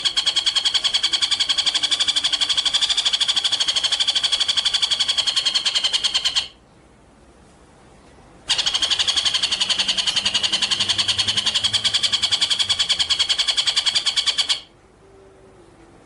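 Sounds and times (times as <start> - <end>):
bird trilling: 0.0 - 6.6, 8.5 - 14.7.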